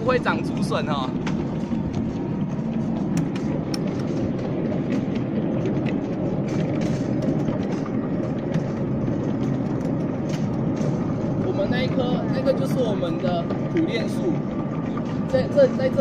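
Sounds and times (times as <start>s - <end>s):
train wheels rumbling on rail: 0.0s - 16.0s
scattered clicks: 0.4s - 11.9s.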